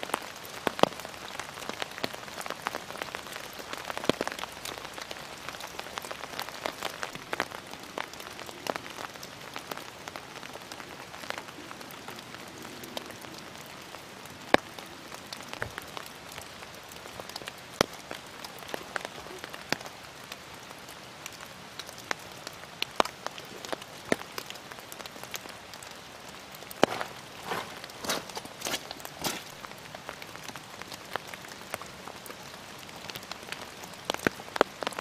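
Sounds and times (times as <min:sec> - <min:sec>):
rain on leaves and umbrella: 0:00.0 - 0:35.0
rustling: 0:26.8 - 0:29.6.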